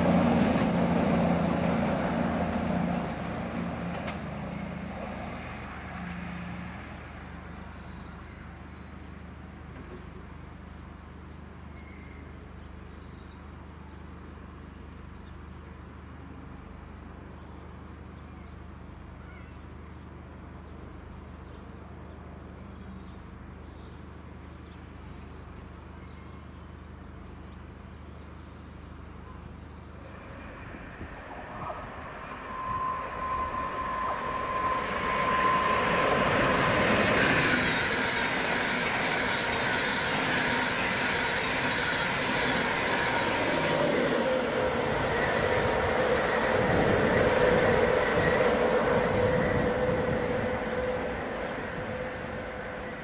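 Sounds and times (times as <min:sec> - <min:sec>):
train passing on rails: 0:00.0 - 0:11.9, 0:28.9 - 0:53.0
low hum: 0:29.8 - 0:37.8
thin high ringing tone: 0:30.0 - 0:43.8.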